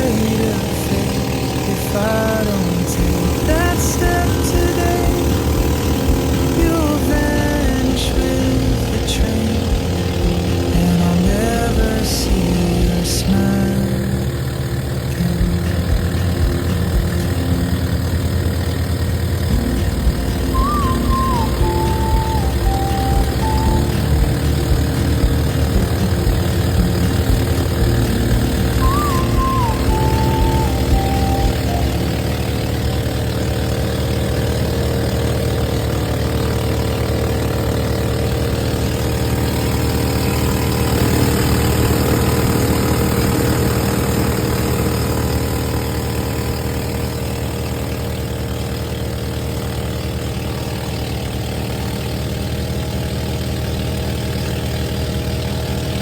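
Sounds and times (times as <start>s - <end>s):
warbling high tone: 0.0s - 34.0s
engine running: 0.0s - 56.0s.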